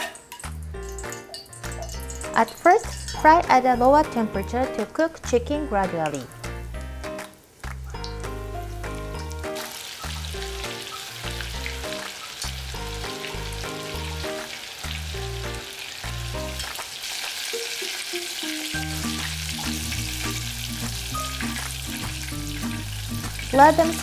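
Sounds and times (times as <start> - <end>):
chicken sizzling in oil: 0.0 - 5.4, 7.1 - 24.0
background music: 0.0 - 16.8, 17.6 - 24.0
chopsticks stirring: 1.0 - 3.4.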